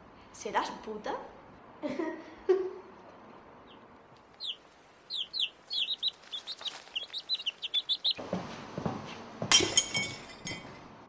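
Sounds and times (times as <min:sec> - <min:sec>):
small birds chirping: 0:03.6 - 0:08.3.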